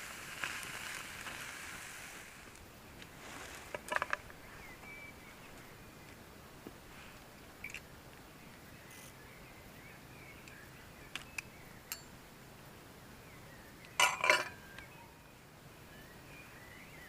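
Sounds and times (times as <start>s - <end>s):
faint bird chirps: 3.2s - 6.3s, 7.6s - 12.1s, 13.1s - 17.0s.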